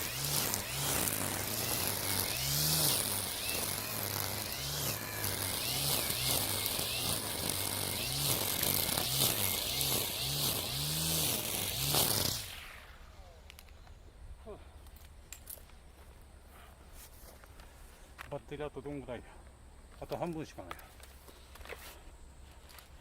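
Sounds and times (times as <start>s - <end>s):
brushcutter whining through weeds: 0.0s - 13.8s.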